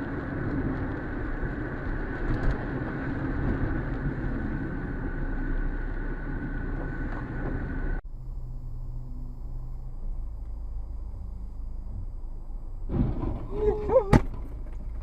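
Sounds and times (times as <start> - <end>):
engine and tyre rumble: 0.0 - 15.0
thin steady whine: 4.6 - 13.1.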